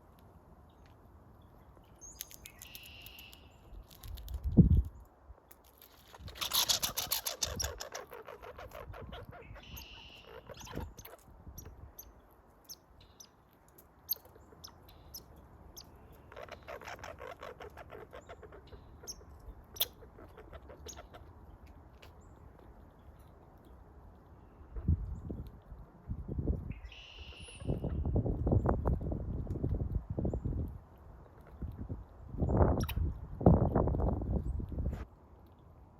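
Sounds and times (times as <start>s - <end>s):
squirrel ticking: 1.8s - 4.5s, 5.5s - 24.4s
squirrel chirp: 1.9s - 4.2s, 5.9s - 23.6s, 26.7s - 28.2s, 32.4s - 33.1s.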